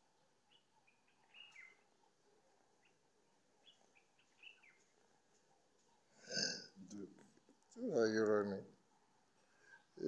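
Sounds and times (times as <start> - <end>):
faint bird chirps: 0.0 - 6.6.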